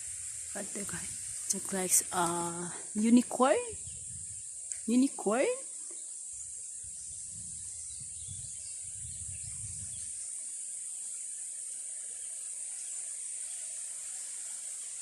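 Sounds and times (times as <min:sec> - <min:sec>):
wind rumbling on microphone: 0:00.0 - 0:04.8, 0:06.3 - 0:10.3
high-pitched insect chorus: 0:00.0 - 0:15.0.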